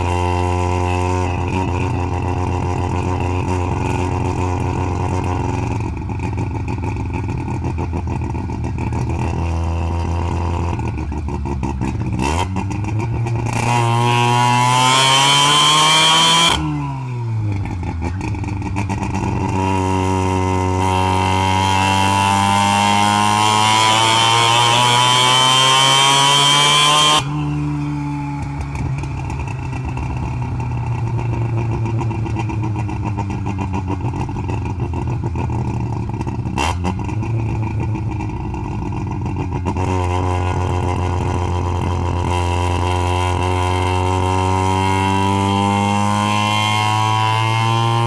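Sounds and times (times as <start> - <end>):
rotary engine revving: 13.4 - 16.8, 19.1 - 33.0.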